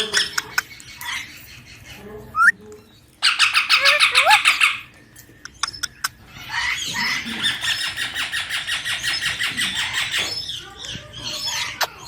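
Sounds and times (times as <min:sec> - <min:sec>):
parakeet squealing calls: 0:03.2 - 0:04.9, 0:06.4 - 0:10.5.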